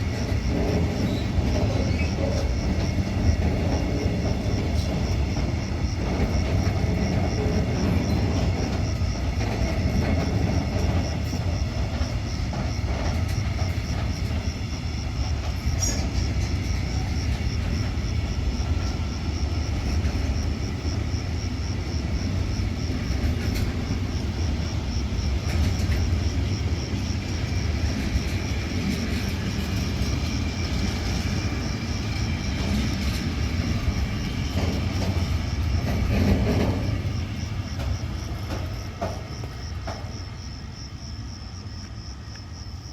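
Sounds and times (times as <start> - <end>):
crickets chirping: 0.0 - 42.9
train wheels rumbling on rails: 0.0 - 42.9.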